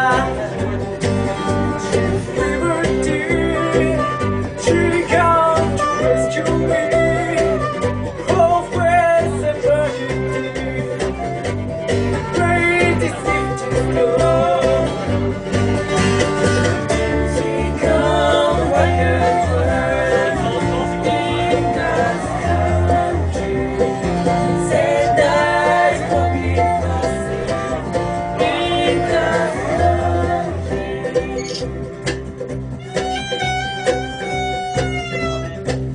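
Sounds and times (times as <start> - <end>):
person singing: 0.0 - 0.9, 1.6 - 11.3, 12.2 - 15.5, 17.1 - 31.7
banjo picking: 0.0 - 35.9
guitar picking: 0.0 - 35.9.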